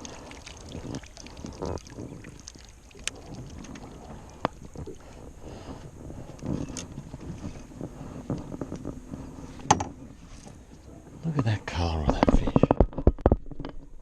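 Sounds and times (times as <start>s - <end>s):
water lapping around boat: 0.0s - 12.7s
wind buffeting microphone: 3.1s - 11.2s
small knocks: 9.6s - 10.0s.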